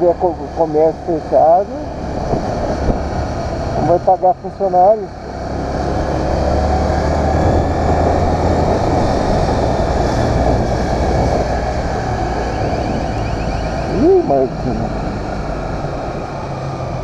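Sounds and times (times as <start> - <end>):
road noise: 0.0 - 17.0
motorcycle engine running: 7.4 - 16.1.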